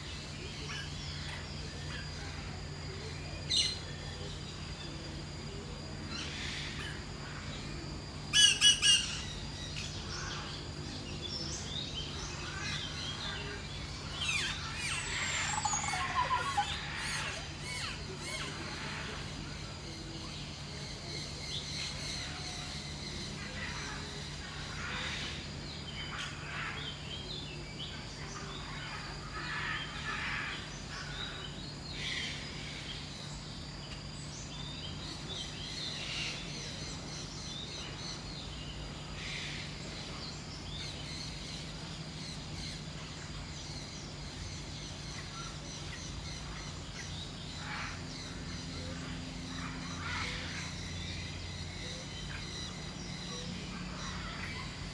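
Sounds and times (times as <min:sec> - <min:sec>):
birds chirping and calling: 0:00.0 - 0:54.9
steady low hum: 0:00.0 - 0:54.9.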